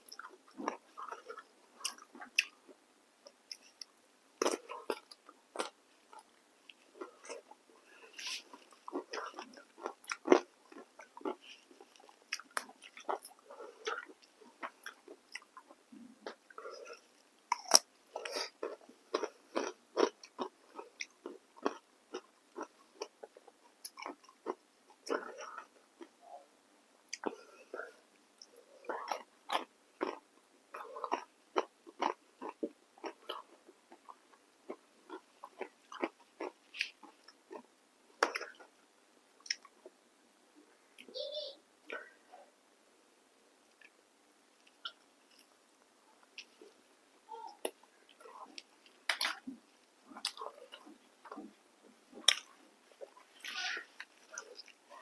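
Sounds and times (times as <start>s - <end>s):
chewing mouth clicks and smacks: 27.1s - 27.8s, 47.6s - 51.5s, 52.2s - 54.8s.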